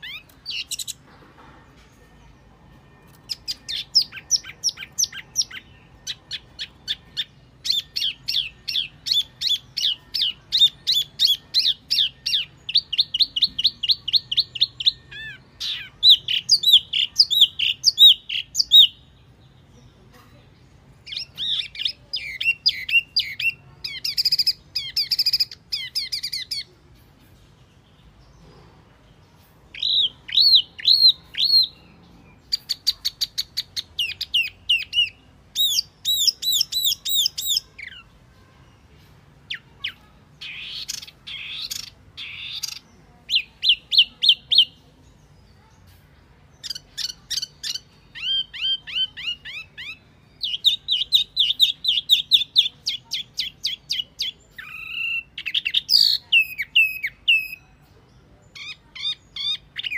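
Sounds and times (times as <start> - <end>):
bird song whistled notes: 0.0 - 1.0, 3.0 - 19.1, 29.7 - 38.9, 46.6 - 57.8.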